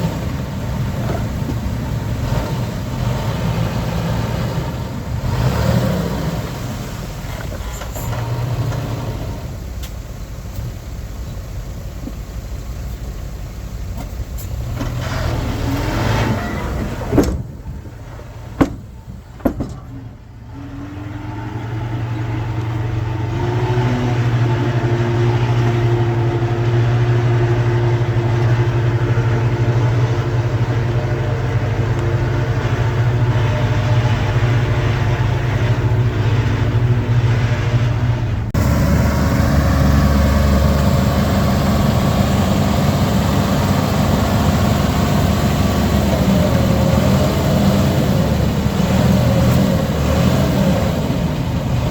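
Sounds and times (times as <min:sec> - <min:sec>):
heavy diesel engine running: 0:00.0 - 0:51.9
sharp knocks: 0:18.6 - 0:20.1.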